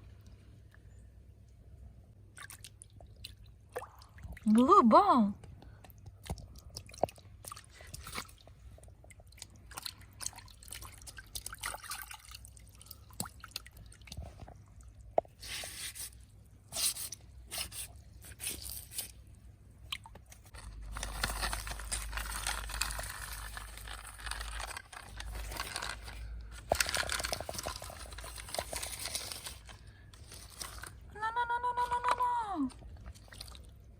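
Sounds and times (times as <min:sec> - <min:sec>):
water dripping: 0:02.3 - 0:15.2.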